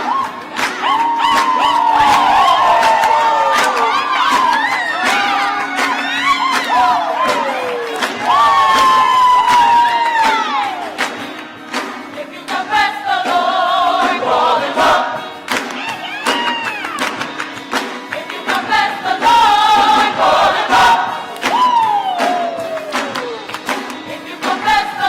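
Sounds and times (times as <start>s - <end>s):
gospel singing: 0.0s - 25.0s
crowd singing along: 10.5s - 15.9s, 17.8s - 22.8s, 23.8s - 25.0s.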